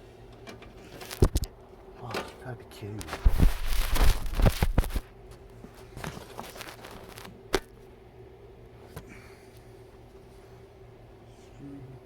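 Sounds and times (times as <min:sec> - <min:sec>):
hands rustling and clattering parts: 0:03.0 - 0:05.0, 0:05.6 - 0:07.4.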